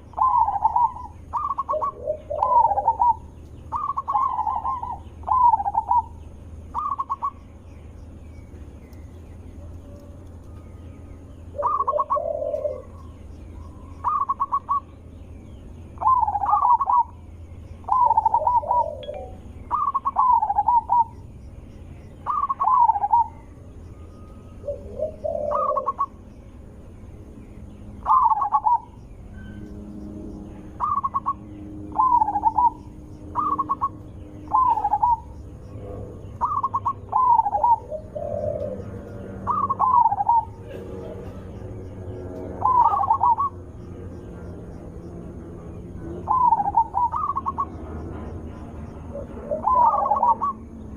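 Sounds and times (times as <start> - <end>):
dove cooing: 0.0 - 7.4, 9.4 - 15.0, 15.9 - 17.2, 17.8 - 21.2, 22.1 - 23.6, 24.5 - 26.3, 28.0 - 29.0, 30.4 - 43.8, 46.0 - 47.8, 49.1 - 50.7.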